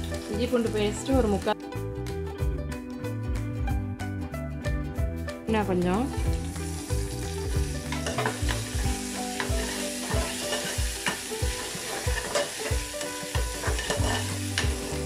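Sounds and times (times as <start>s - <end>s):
onions sizzling in oil: 0.0s - 1.5s, 6.2s - 15.0s
metal spoon scraping a pan: 7.8s - 15.0s.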